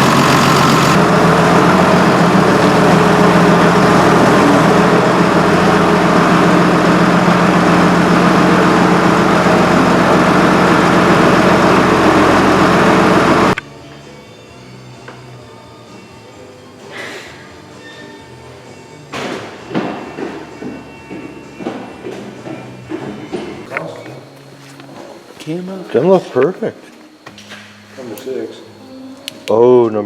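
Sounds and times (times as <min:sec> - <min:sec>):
boring machine motor drone: 0:00.0 - 0:13.6.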